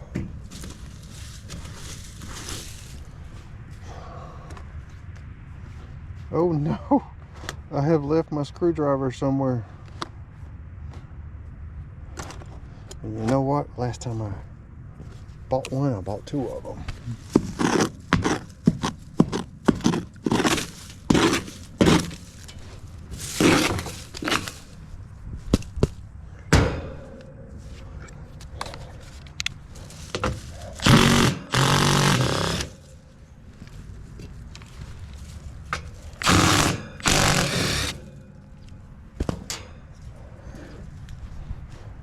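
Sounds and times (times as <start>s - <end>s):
tools scraping: 0.0s - 3.1s, 16.9s - 24.9s, 26.7s - 40.8s
hand tools clattering and knocking: 17.3s - 24.7s.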